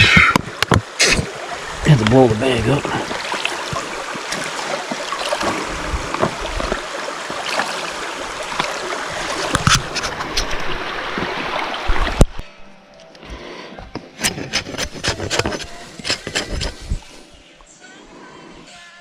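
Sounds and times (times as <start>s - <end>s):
brook water gurgling and splashing: 0.0s - 12.4s.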